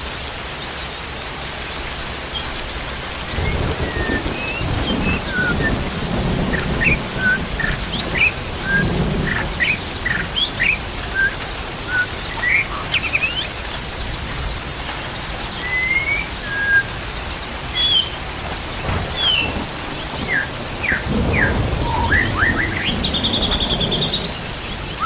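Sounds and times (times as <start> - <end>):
rain hissing: 0.0 - 25.0
bird chirps and whistles: 3.2 - 5.9, 6.5 - 13.6, 15.6 - 17.0, 17.7 - 18.2, 20.2 - 25.0
low rumble: 18.7 - 25.0.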